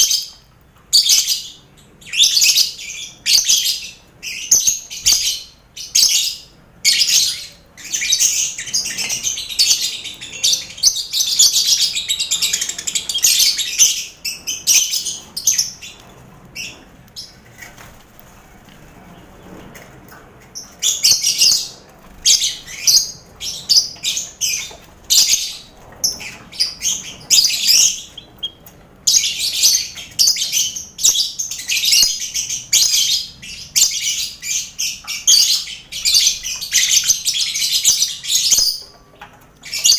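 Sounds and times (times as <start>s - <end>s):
birds chattering high-pitched chirps: 0.0s - 18.0s, 18.8s - 39.9s.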